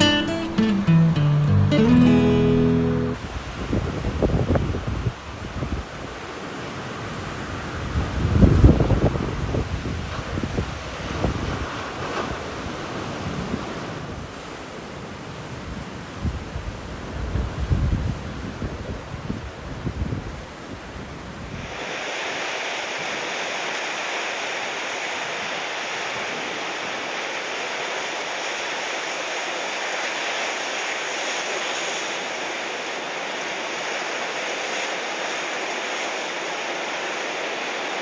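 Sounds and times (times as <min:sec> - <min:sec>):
surf rushing: 0:00.0 - 0:15.0, 0:21.4 - 0:38.0
wind buffeting microphone: 0:03.2 - 0:06.1, 0:07.5 - 0:14.4, 0:15.4 - 0:21.8.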